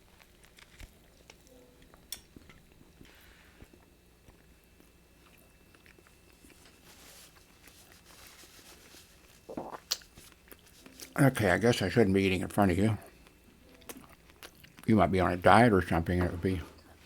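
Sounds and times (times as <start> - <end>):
man chewing food: 0.0 - 11.4, 13.0 - 14.9
wet mouth clicks: 9.5 - 10.1.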